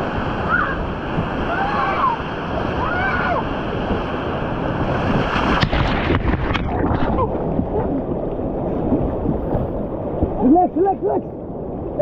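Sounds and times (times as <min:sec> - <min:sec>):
river rapids rushing: 0:00.0 - 0:09.3
faint shouts: 0:01.4 - 0:03.5.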